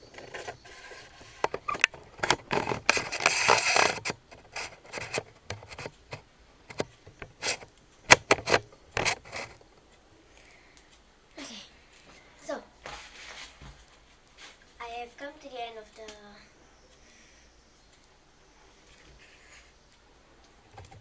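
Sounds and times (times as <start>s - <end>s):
rubbing and scraping: 0.0s - 9.6s, 12.8s - 14.8s.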